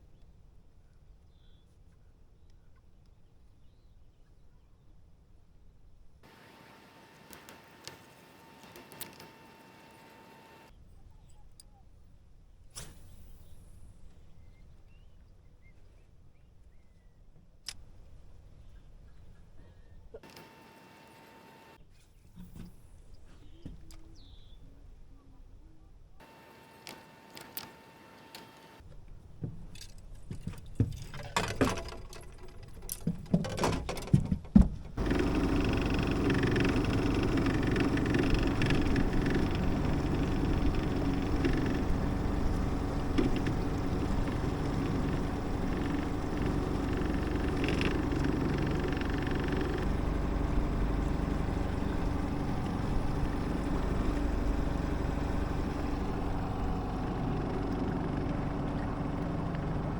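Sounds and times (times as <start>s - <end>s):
knocks and clicks of gear: 26.8s - 59.9s
outboard motor running slowly: 35.0s - 59.9s.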